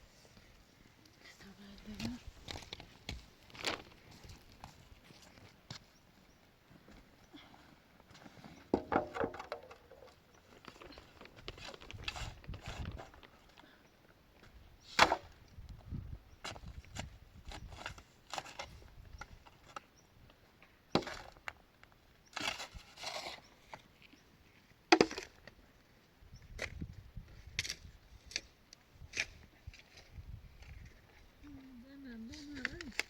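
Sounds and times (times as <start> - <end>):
wooden boards knocking: 8.8 - 10.1.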